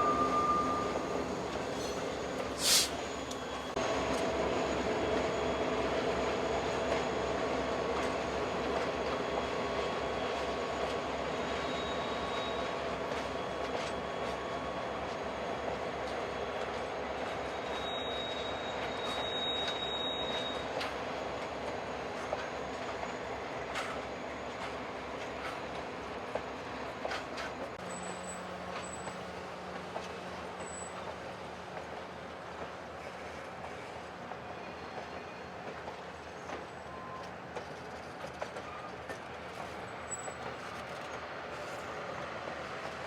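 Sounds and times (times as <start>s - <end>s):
thin steady squeal: 0.0s - 3.8s, 17.4s - 20.9s
train rolling past: 0.0s - 43.0s.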